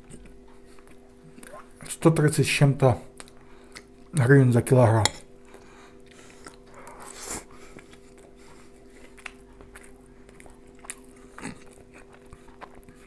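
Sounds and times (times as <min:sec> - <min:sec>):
chewing with wet mouth sounds: 0:00.0 - 0:01.8, 0:03.2 - 0:04.2, 0:05.4 - 0:13.0
faint steady hum: 0:00.0 - 0:13.0.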